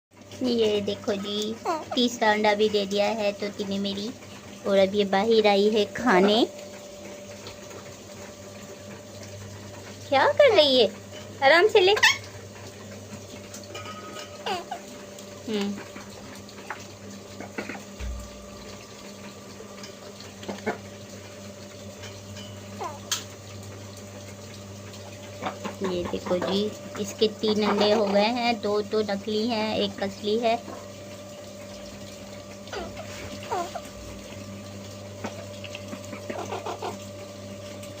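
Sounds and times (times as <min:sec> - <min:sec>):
steady background hum: 0:00.2 - 0:38.0
parrot calls: 0:11.9 - 0:12.3, 0:22.8 - 0:23.2, 0:32.7 - 0:33.9, 0:36.1 - 0:37.0.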